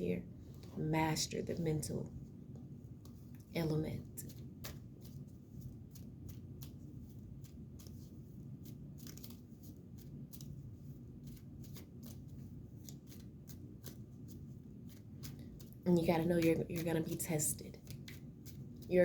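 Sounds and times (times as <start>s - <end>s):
cards clicking and snapping: 8.6s - 10.5s.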